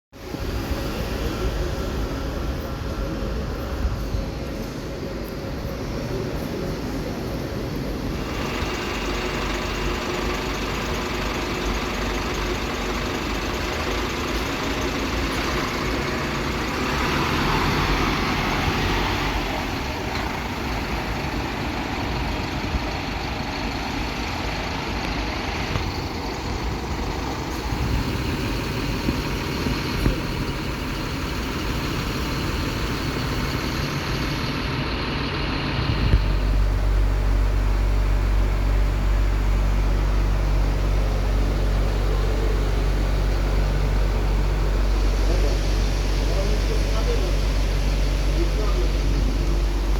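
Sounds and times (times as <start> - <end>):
bus engine and road noise: 0.1 - 49.9.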